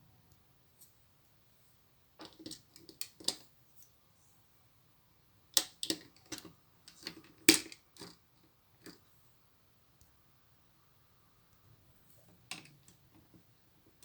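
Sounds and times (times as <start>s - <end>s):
plastic bricks clicking: 2.2s - 3.4s, 5.6s - 8.2s.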